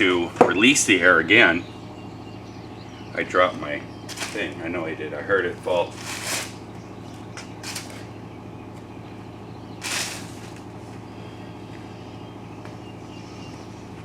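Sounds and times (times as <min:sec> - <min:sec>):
low machine hum: 0:00.0 - 0:14.0
faint rustles: 0:04.0 - 0:04.6, 0:05.8 - 0:06.7, 0:07.4 - 0:08.1, 0:09.8 - 0:11.0
hissing scrape: 0:09.8 - 0:10.6.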